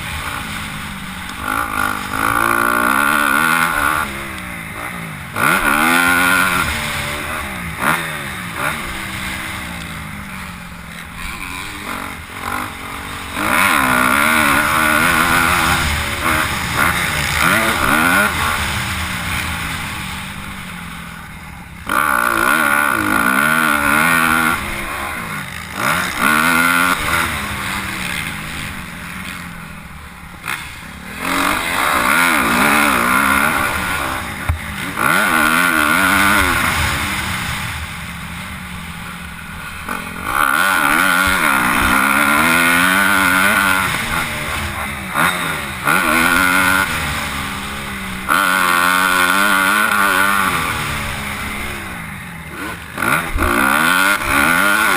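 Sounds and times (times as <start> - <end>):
motocross bikes revving: 0.0 - 54.9.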